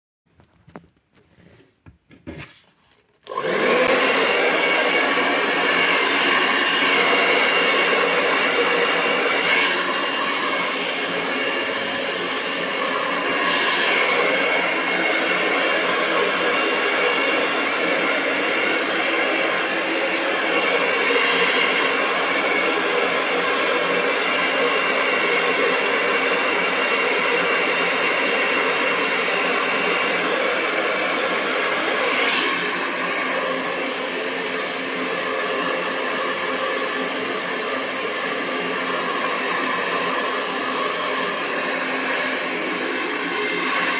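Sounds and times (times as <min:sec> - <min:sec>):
hair dryer blowing air: 0:03.2 - 0:43.9.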